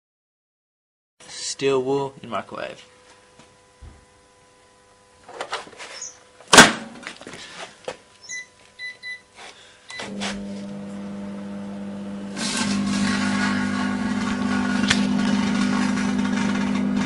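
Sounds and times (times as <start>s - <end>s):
microwave oven humming: 2.9s - 5.5s, 8.2s - 17.0s
keypad beeps: 8.2s - 9.2s.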